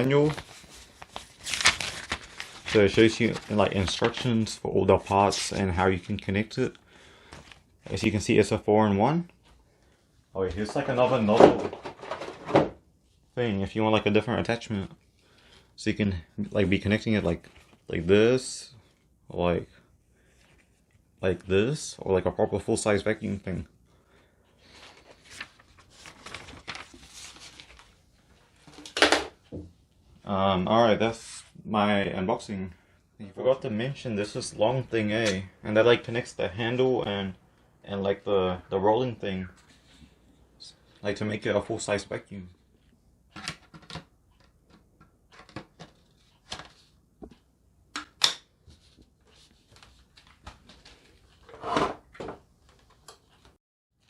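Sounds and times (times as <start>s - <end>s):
plastic parts clicking and knocking: 43.4s - 46.0s.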